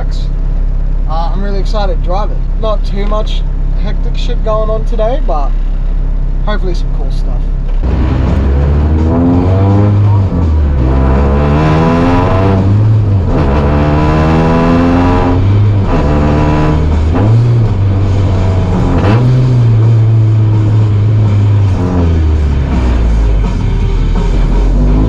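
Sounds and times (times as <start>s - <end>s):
race car engine accelerating: 7.5s - 25.0s.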